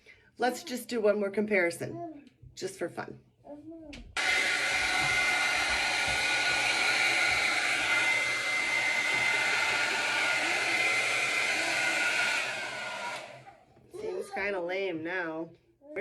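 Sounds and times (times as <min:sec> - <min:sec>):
hair dryer blowing with whine: 0:04.2 - 0:13.7.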